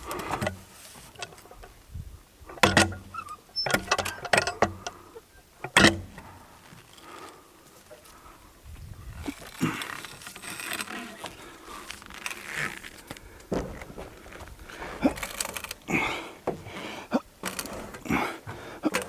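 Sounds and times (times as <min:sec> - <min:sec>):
log knocking and scraping: 0:05.6 - 0:19.0.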